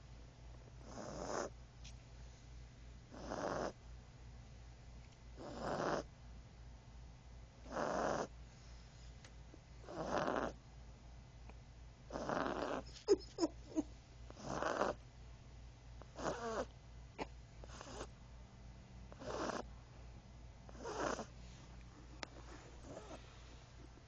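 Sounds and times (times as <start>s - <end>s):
puppy snoring: 0.8s - 1.6s, 3.1s - 3.8s, 5.4s - 6.1s, 7.6s - 8.4s, 9.8s - 10.6s, 12.1s - 15.0s, 16.0s - 18.2s, 19.1s - 19.7s, 20.7s - 21.4s, 22.1s - 23.6s
squeaky snuffles: 16.2s - 18.1s, 22.4s - 23.4s.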